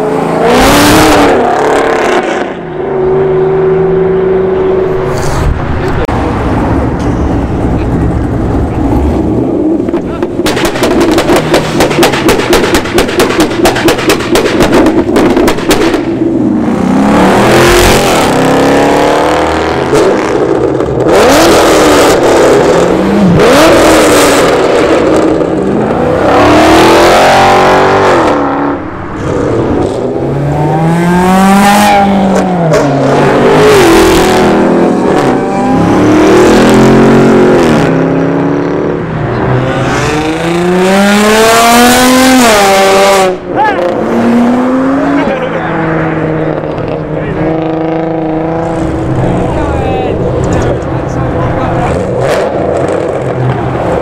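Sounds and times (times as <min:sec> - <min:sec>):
car engines revving hard: 0:00.0 - 0:54.0
exhaust pops crackling: 0:09.8 - 0:16.2.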